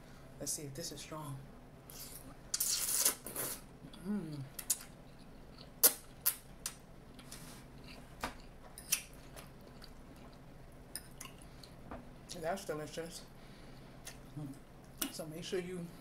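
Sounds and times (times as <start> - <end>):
person humming: 3.9 - 4.6.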